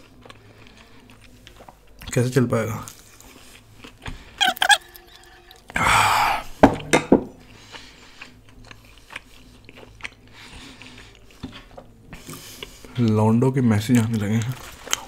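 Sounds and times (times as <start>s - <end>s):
person chewing: 0.0s - 2.2s, 2.8s - 6.6s, 7.3s - 13.0s, 14.0s - 15.0s
lip smacks: 4.4s - 5.7s
squeaky mouth sounds: 4.4s - 5.7s
loud breathy rush: 5.8s - 6.6s.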